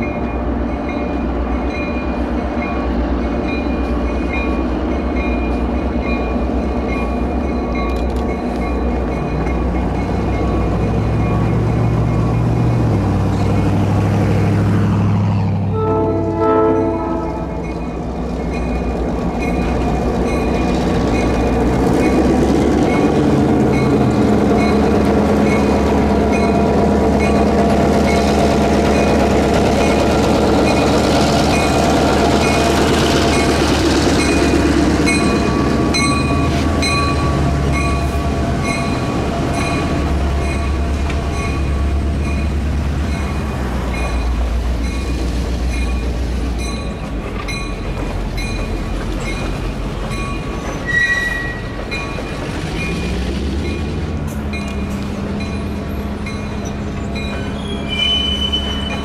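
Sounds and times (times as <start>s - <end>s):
train cars rolling by: 0.0s - 59.0s
locomotive air horn chord: 15.7s - 17.6s.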